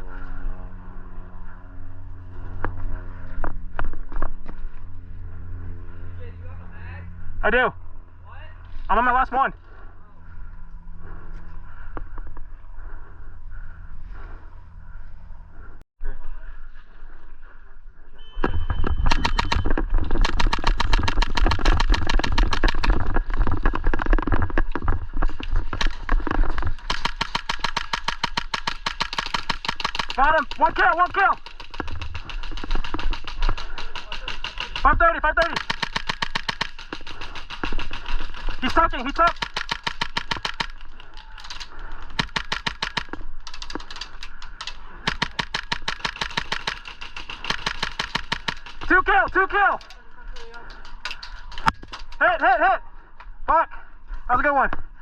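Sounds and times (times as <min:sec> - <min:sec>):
airsoft gun firing full auto: 0:19.0 - 0:22.9, 0:26.8 - 0:40.8, 0:42.2 - 0:44.1, 0:45.0 - 0:48.9.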